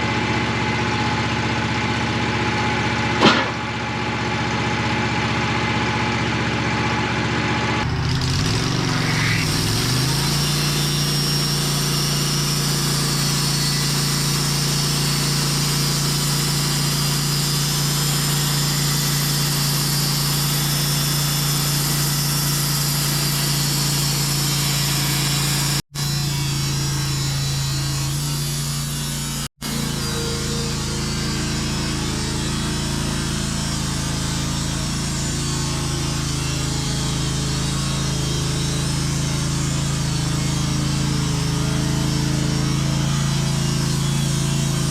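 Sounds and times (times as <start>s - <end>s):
band saw cutting log: 0.0s - 44.9s
sawmill engine running: 0.0s - 44.9s.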